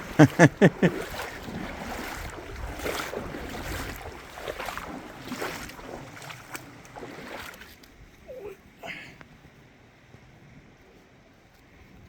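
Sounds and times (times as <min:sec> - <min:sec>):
water sloshing around wading legs: 0:00.0 - 0:08.5
wind rumble on microphone: 0:00.8 - 0:07.2.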